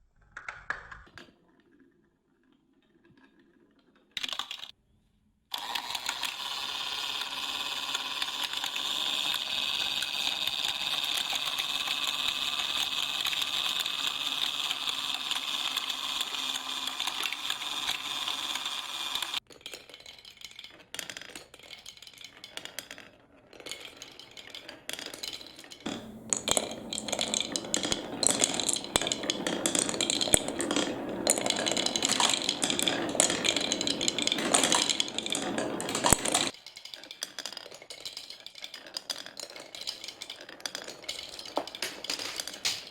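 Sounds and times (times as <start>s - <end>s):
small motor running: 5.6s - 19.4s
balls clattering along track: 7.1s - 42.9s
balls tumbling inside: 25.9s - 36.6s, 39.0s - 42.9s.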